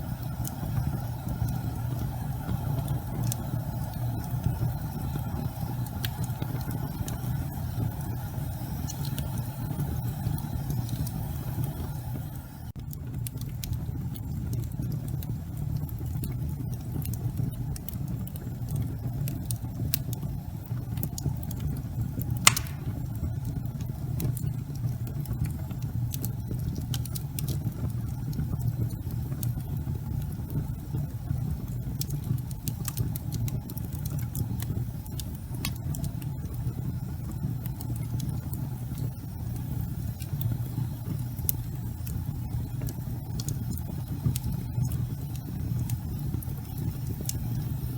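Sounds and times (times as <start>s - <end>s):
fire crackling: 0.0s - 47.9s
fire rumbling: 0.0s - 47.9s
sharp loud pop: 22.5s - 23.0s.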